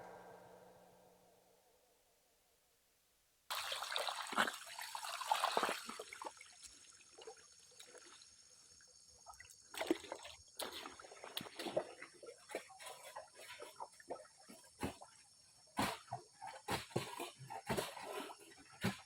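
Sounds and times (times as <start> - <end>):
water trickling and splashing: 3.5 - 15.4.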